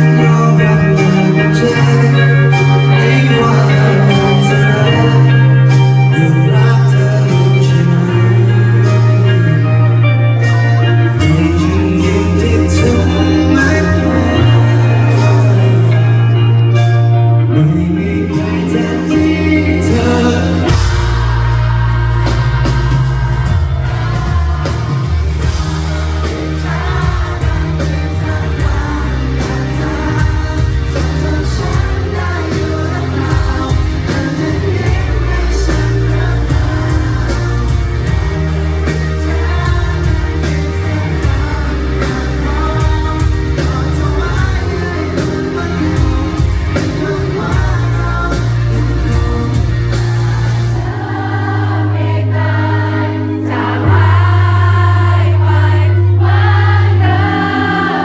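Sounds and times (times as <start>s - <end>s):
live pop rock band: 0.0s - 58.0s
person singing: 0.0s - 58.0s.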